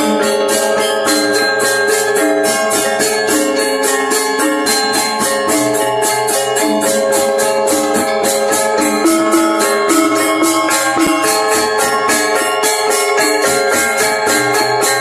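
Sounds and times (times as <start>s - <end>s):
fast cymbal-like strokes: 0.0s - 15.0s
gamelan playing: 0.0s - 15.0s.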